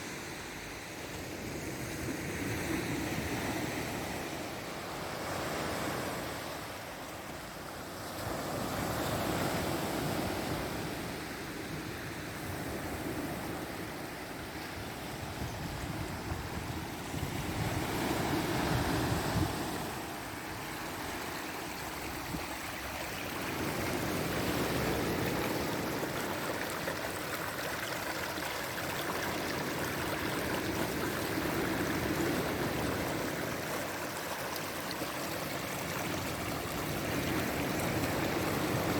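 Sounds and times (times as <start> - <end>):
sea waves breaking on shore: 12.2 - 38.9.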